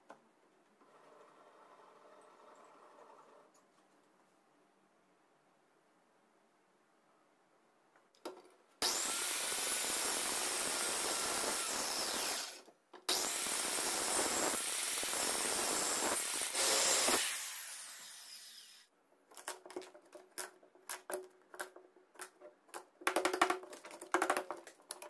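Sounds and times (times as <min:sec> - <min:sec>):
power tool running: 0:08.8 - 0:18.8.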